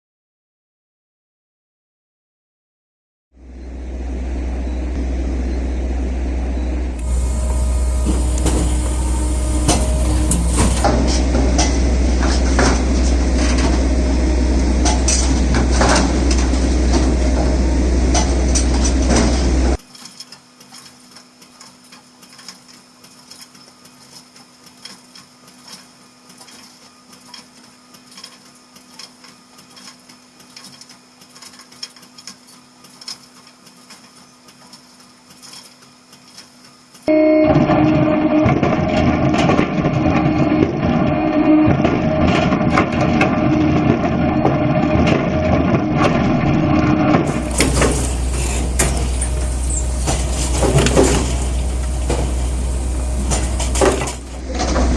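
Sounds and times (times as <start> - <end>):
faint steady hum: 3.4 - 19.8
firewood processor drone: 3.4 - 19.9, 37.1 - 54.9
wood cracking and splitting: 47.2 - 54.9.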